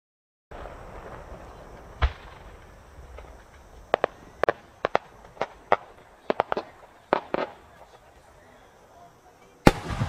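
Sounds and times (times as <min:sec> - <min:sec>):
firework deep thump: 0:00.5 - 0:08.0, 0:09.7 - 0:10.0
firework cracks and bangs: 0:00.5 - 0:08.2, 0:09.6 - 0:10.0.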